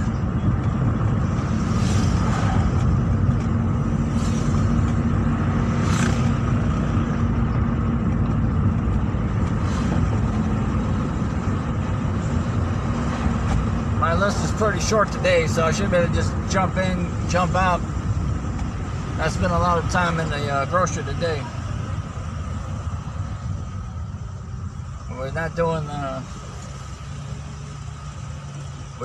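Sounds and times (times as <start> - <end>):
low hum: 0.0 - 15.4
car engine and road rumble: 0.0 - 29.0.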